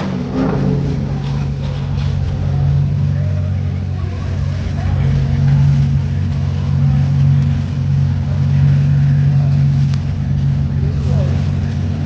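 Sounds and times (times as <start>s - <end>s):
car engine droning: 0.0s - 12.0s
road noise: 0.0s - 12.0s.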